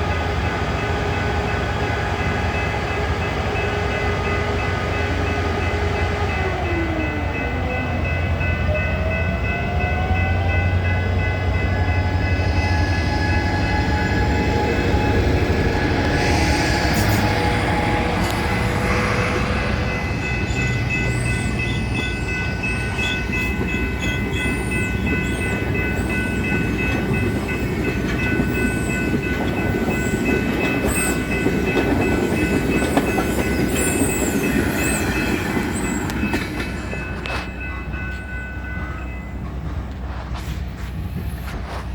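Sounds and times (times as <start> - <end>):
train cars rumbling on rails: 0.0 - 41.9
high-pitched whining tones: 11.4 - 39.3.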